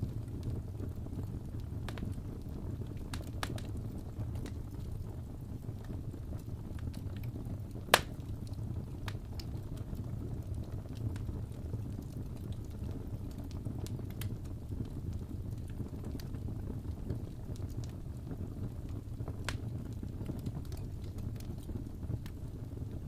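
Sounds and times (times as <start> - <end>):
fire crackling and popping: 0.0 - 23.0.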